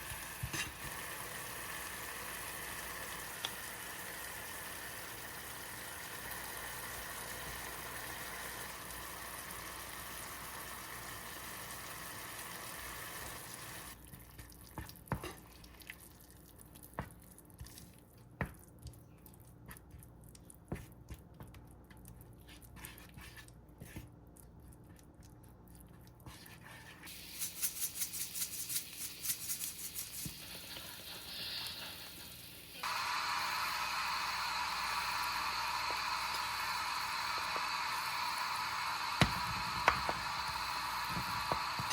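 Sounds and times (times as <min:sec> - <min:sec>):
steady cooking hiss: 0:00.0 - 0:14.1, 0:26.3 - 0:41.9.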